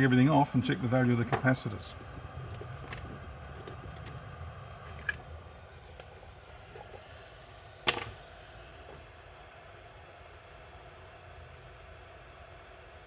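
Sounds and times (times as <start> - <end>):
low steady hum: 0.0 - 10.4
small tools clicking and tapping: 1.3 - 4.2.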